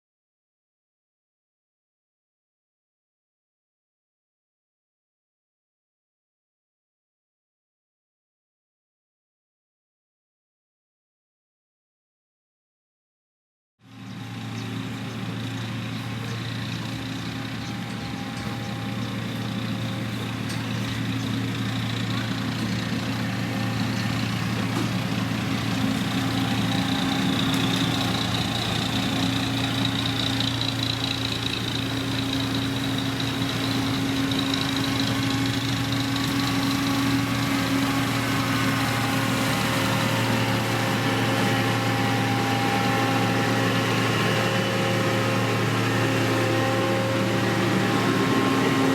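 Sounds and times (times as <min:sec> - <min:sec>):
diesel engine running: 0:13.8 - 0:48.9.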